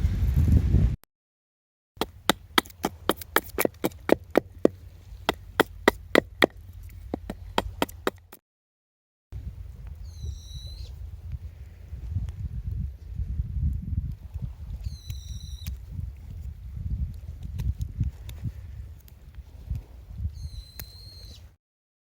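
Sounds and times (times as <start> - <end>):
sharp woody clicks: 2.0 - 8.4.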